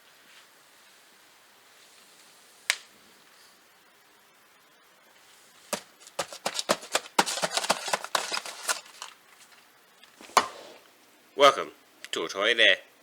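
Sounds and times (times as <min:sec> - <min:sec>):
toy packaging crackling and rustling: 0:05.7 - 0:10.2.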